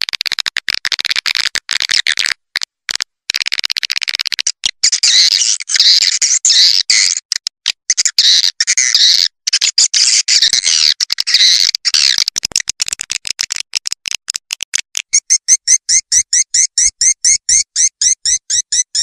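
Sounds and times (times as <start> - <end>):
fast short clicks: 0.0 - 5.7, 7.2 - 8.7, 9.5 - 15.7
swiftlet twittering chirps: 15.1 - 19.0.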